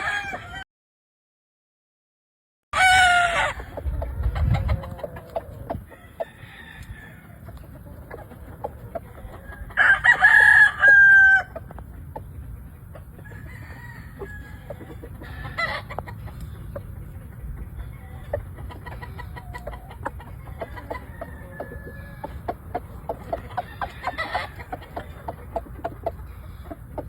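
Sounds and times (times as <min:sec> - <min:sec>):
roosters crowing: 0:00.0 - 0:00.6, 0:02.8 - 0:07.6, 0:08.4 - 0:11.8, 0:13.1 - 0:16.6, 0:19.0 - 0:25.6
soft clucks: 0:03.4 - 0:06.2, 0:06.8 - 0:09.8, 0:11.5 - 0:13.3, 0:14.2 - 0:27.0.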